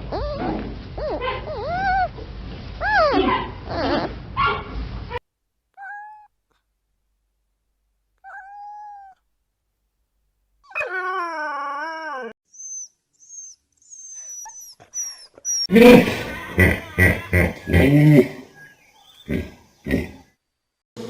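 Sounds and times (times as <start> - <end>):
animal whining: 0.0 - 2.2, 2.8 - 4.2, 5.8 - 6.3, 8.2 - 9.2, 10.6 - 20.3.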